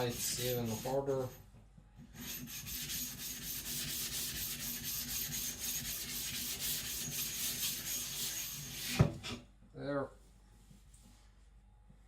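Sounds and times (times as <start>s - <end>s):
knife scraping on a whetstone: 0.0s - 1.1s.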